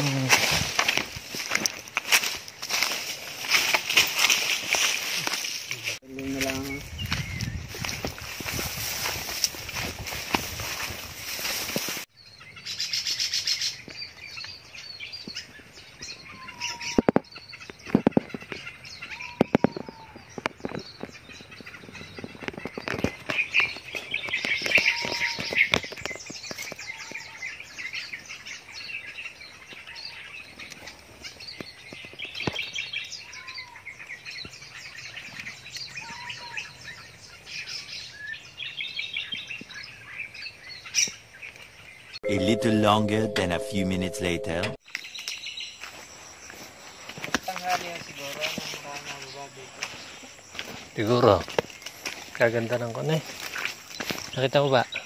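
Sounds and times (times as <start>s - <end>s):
small birds chirping and trilling: 0.0s - 42.2s, 44.9s - 55.0s.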